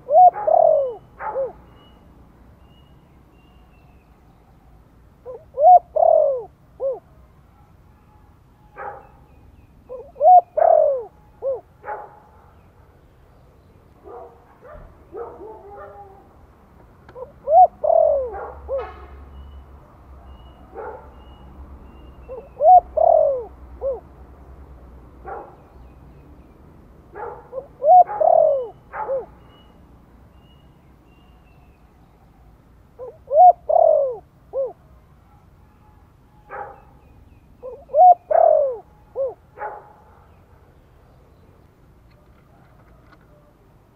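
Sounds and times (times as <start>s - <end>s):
dove cooing: 0.0s - 1.7s, 5.2s - 7.1s, 9.8s - 12.0s, 17.1s - 19.0s, 22.0s - 24.1s, 27.2s - 29.4s, 33.0s - 34.9s, 37.6s - 39.8s.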